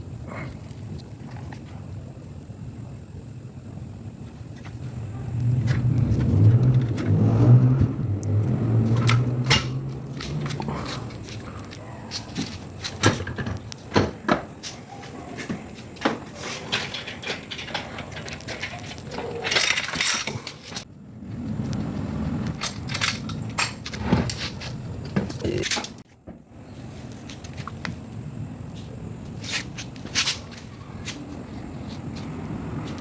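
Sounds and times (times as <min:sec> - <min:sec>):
metal tools clinking and knocking: 0:08.9 - 0:11.4, 0:16.0 - 0:20.8.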